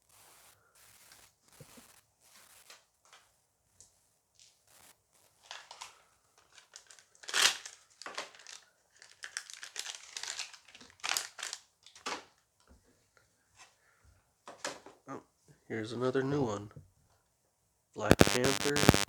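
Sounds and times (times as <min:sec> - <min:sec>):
wrapper tearing and crinkling: 0:06.5 - 0:12.0.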